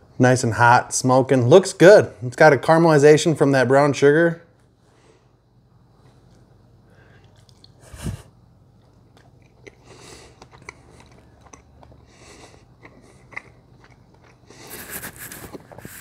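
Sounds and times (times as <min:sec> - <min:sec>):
man chewing: 0:05.8 - 0:16.0.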